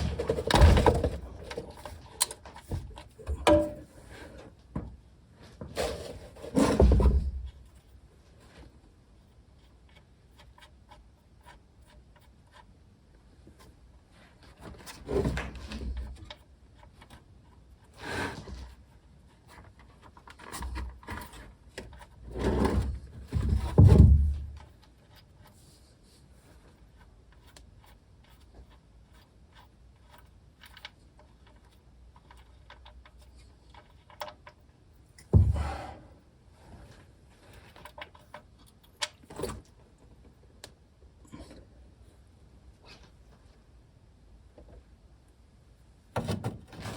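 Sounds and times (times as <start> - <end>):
handling rubbing and knocks: 0.0 - 8.8, 18.4 - 40.4.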